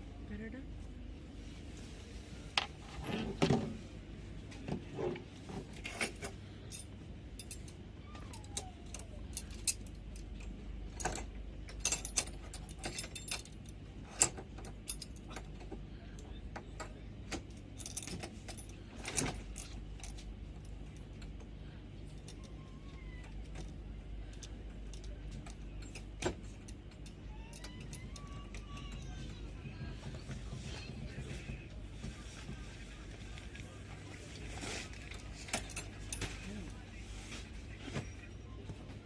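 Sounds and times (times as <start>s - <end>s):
metallic clicks and clinks: 5.8s - 15.6s.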